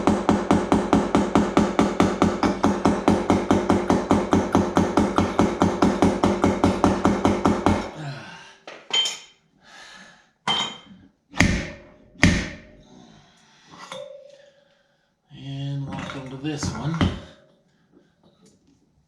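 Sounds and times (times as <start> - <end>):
hammer tapping sheet metal: 0.0 - 7.9, 11.4 - 12.8
hard hammer blows: 0.0 - 8.0, 11.3 - 12.8.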